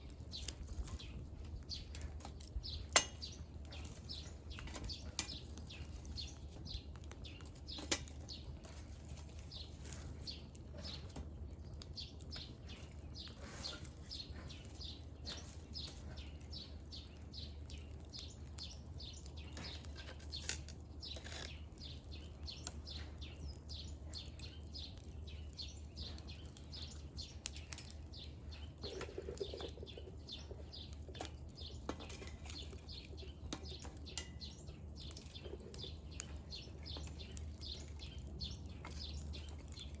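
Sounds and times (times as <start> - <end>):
firewood crackling and popping: 0.0 - 40.0.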